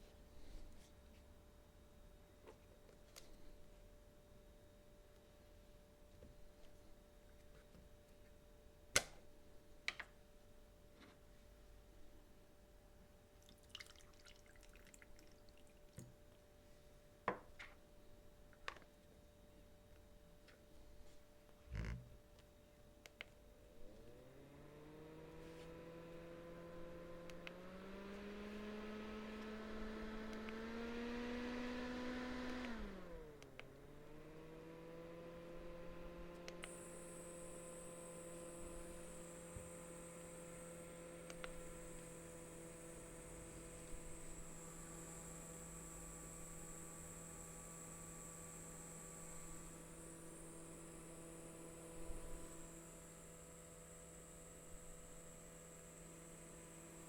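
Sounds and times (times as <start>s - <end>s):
desktop fan motor humming: 23.7s - 57.0s
high thin whine: 36.6s - 57.0s
faint clicks: 41.2s - 42.1s.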